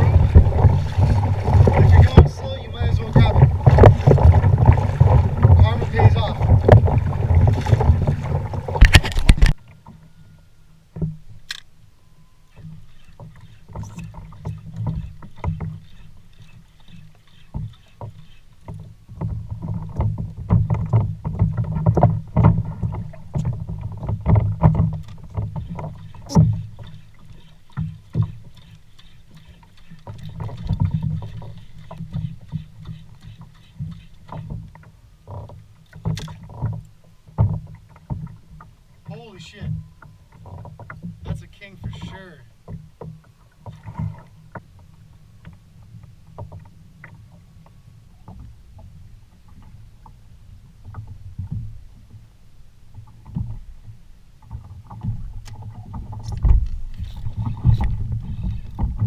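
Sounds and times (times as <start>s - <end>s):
water sloshing against a hull: 0.0s - 59.0s
small knocks and clicks: 12.5s - 38.7s.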